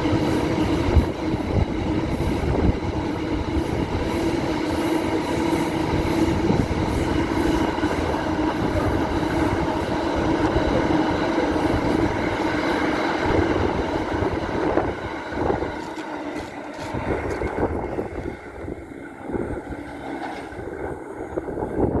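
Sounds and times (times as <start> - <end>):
train running past: 0.0 - 22.0
ringing tone: 17.6 - 22.0.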